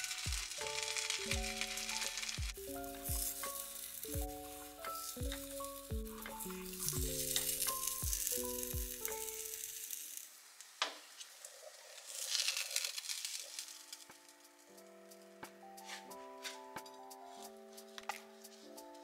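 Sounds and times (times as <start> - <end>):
background music with light beat: 0.0 - 9.3, 14.0 - 19.0
sandwich sizzling in oil: 0.0 - 14.8.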